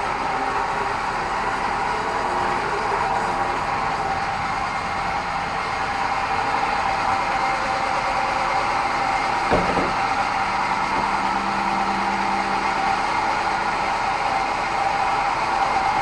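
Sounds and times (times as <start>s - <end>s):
knock: 9.5s - 10.0s.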